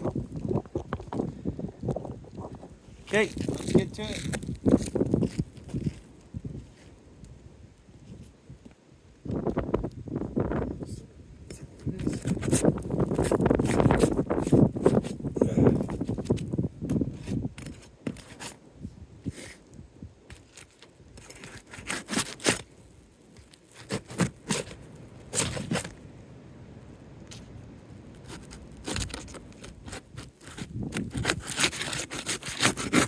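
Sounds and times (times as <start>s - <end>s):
roof shingles tearing and scraping: 20.4s - 22.7s, 23.4s - 26.0s, 28.2s - 33.0s.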